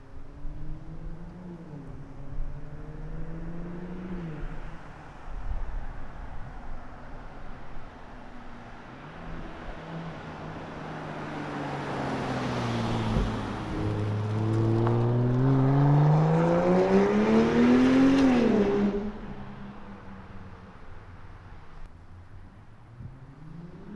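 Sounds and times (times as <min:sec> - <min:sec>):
car engine accelerating hard: 0:11.0 - 0:20.0.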